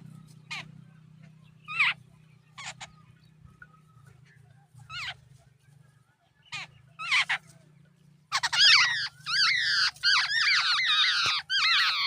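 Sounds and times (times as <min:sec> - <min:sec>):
birds giving harsh nasal calls: 0:00.0 - 0:00.8, 0:01.5 - 0:03.2, 0:04.8 - 0:05.3, 0:06.4 - 0:07.6, 0:08.3 - 0:12.0
low steady hum: 0:00.0 - 0:12.0.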